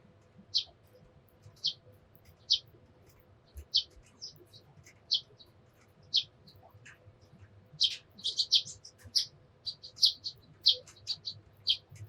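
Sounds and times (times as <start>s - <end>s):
sparrows chirping: 0.5s - 0.7s, 1.6s - 2.7s, 3.6s - 6.3s, 7.8s - 12.0s.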